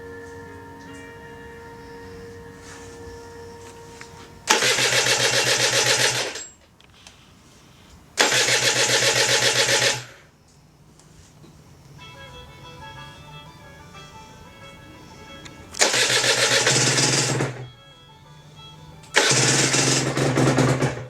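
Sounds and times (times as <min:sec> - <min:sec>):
two-stroke engine turning over: 0:04.4 - 0:06.6, 0:08.2 - 0:10.2, 0:15.8 - 0:17.7, 0:19.1 - 0:21.0.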